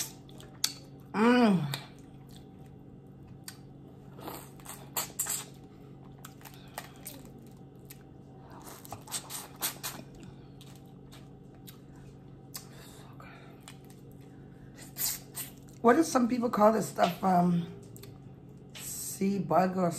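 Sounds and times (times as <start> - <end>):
chewing and smacking: 0.0 - 1.1, 1.7 - 12.8, 13.5 - 15.8, 17.8 - 18.8.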